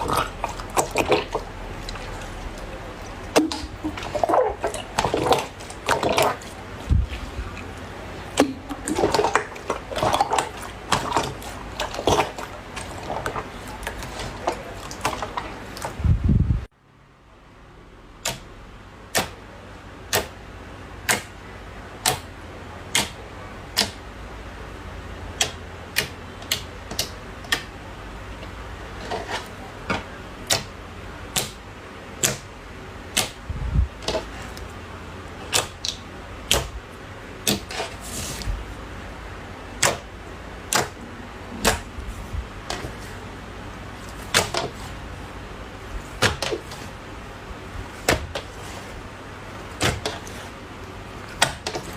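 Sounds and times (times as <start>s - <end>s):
low steady hum: 0.0s - 51.9s.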